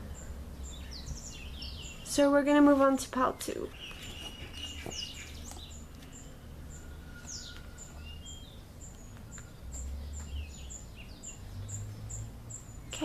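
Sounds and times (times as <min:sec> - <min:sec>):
small birds chirping: 0:00.0 - 0:13.0
falling whistled bird calls: 0:06.7 - 0:10.8.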